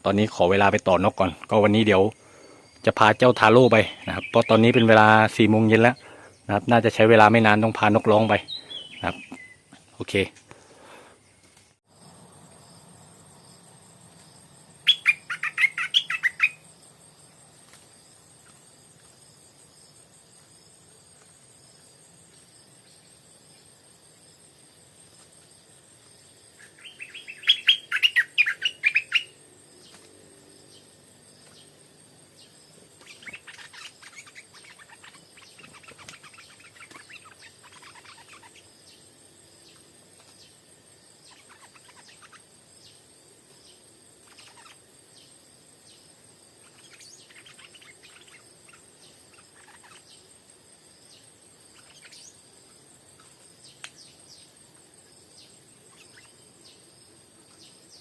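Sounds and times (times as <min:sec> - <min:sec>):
bulbul singing: 0:00.0 - 0:10.3, 0:14.3 - 0:17.0, 0:26.5 - 0:40.6, 0:41.2 - 0:46.0, 0:46.6 - 0:50.3, 0:51.0 - 0:52.4, 0:55.3 - 0:56.9
high insect drone: 0:00.0 - 0:58.0.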